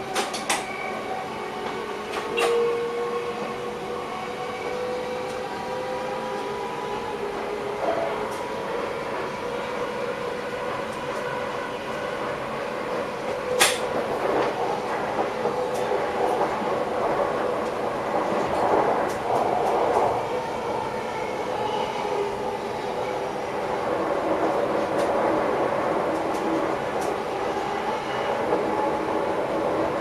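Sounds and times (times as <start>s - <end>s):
train rolling rumble: 0.0s - 30.0s.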